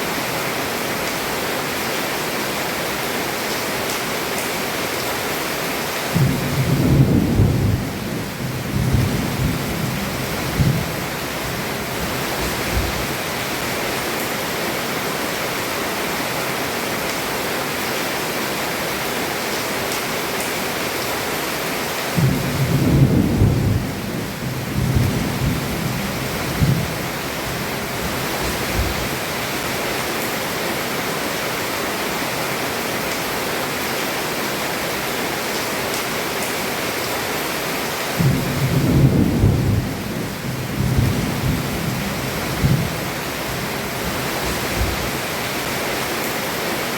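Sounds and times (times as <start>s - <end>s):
heavy rain falling: 0.0s - 46.9s
thunder rumbling: 6.1s - 13.2s, 22.2s - 29.2s, 38.2s - 45.1s.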